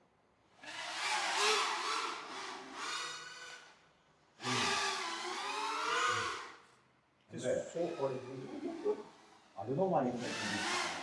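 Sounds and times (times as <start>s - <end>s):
quadcopter motors whining: 0.6s - 3.6s, 4.4s - 6.6s, 7.7s - 11.0s.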